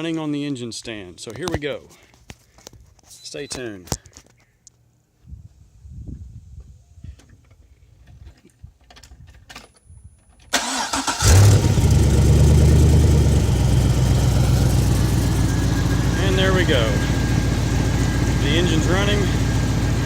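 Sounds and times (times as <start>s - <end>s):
starter motor cranking: 10.6s - 12.1s
car engine revving and idling: 11.1s - 20.0s.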